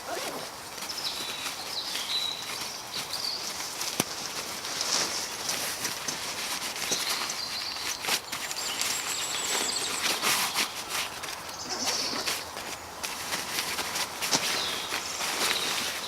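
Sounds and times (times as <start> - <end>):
rustling in dry leaves: 0.0 - 16.0
small birds singing: 0.0 - 16.0.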